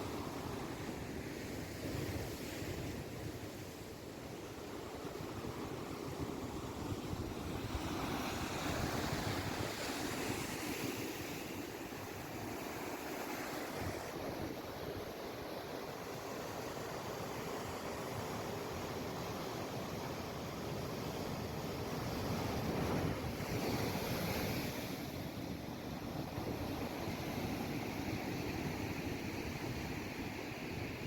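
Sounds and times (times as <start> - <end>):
waves washing in: 4.6 - 31.0.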